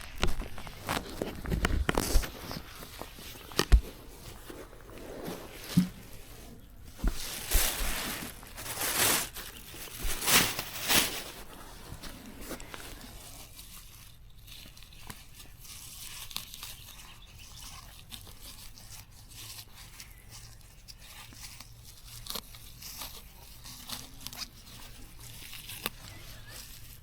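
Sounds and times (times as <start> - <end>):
plant stems snapping: 0.0 - 4.0
leaves and stems rustling: 0.0 - 27.0.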